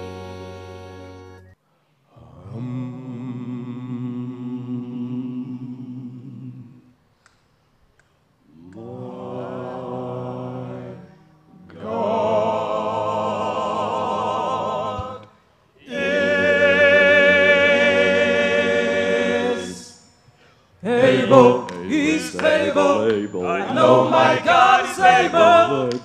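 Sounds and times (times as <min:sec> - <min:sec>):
choir singing held notes: 0:08.6 - 0:26.0.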